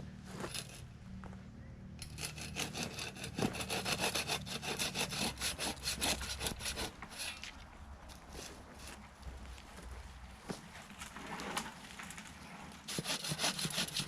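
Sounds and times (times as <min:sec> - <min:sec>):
hand saw cutting wood: 0:00.3 - 0:00.8, 0:02.0 - 0:09.0, 0:12.8 - 0:14.0.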